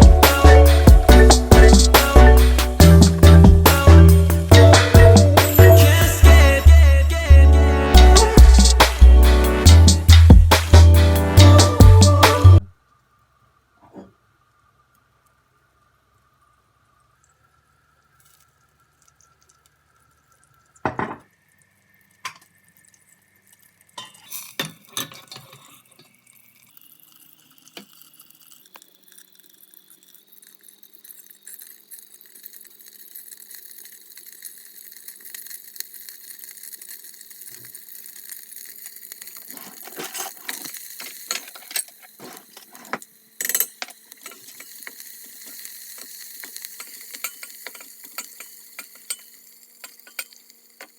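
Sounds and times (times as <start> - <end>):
steady hiss: 0.0 - 50.9
dishes and utensils clinking: 24.0 - 25.8, 39.6 - 45.6, 46.7 - 50.9.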